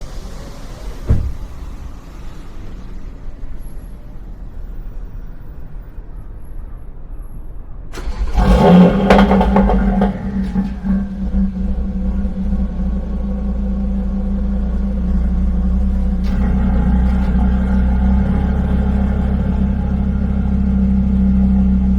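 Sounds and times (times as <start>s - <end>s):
car engine rumbling: 0.0s - 21.9s
thump: 1.0s - 1.8s.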